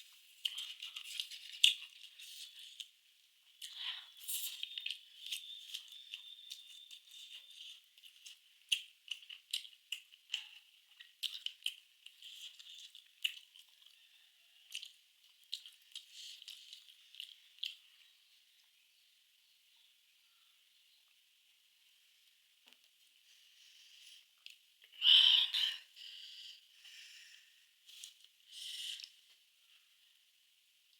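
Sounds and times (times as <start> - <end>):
chewing crisp food: 0.3 - 18.1.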